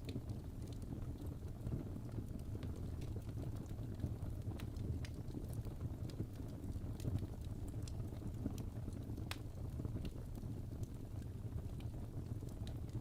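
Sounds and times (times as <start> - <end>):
fireplace crackling: 7.8 - 10.4.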